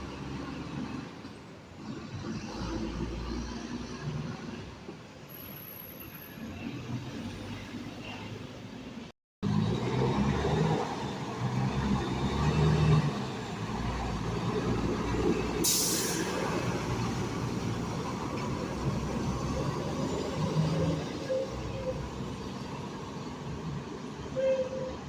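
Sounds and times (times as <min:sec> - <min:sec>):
air brake hiss: 0:15.6 - 0:16.5.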